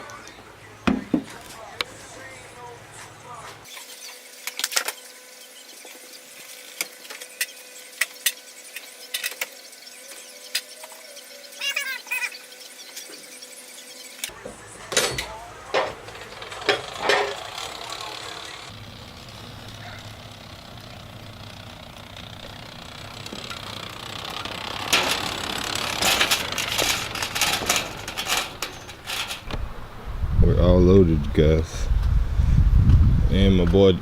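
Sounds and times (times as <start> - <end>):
knocks and clanks of equipment: 14.3 - 17.8, 24.4 - 29.6
clicks and rattles: 14.9 - 29.6.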